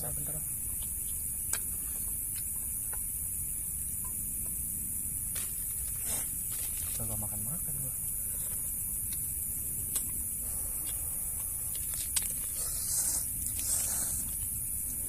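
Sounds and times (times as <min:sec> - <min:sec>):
night insects buzzing: 0:00.0 - 0:15.0
rustling: 0:05.3 - 0:07.3.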